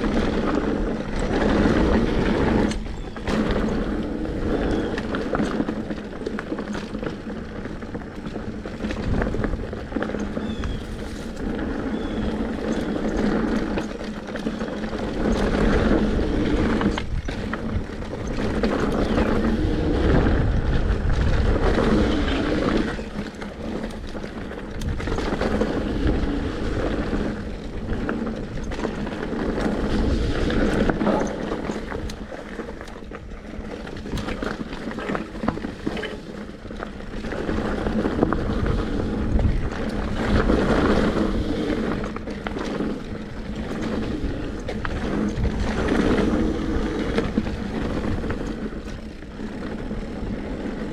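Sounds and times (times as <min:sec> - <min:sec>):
bike rattling over bumps: 0:00.0 - 0:50.9
bike tyres on dirt: 0:00.0 - 0:50.9
wind on microphone: 0:15.1 - 0:34.4, 0:35.4 - 0:50.9.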